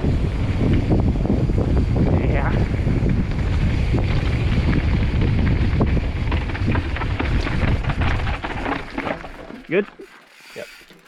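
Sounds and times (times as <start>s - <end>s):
wind buffeting microphone: 0.0s - 9.6s
bike tyres rumbling on dirt: 0.0s - 11.0s
bike rattling and knocking: 2.6s - 11.0s.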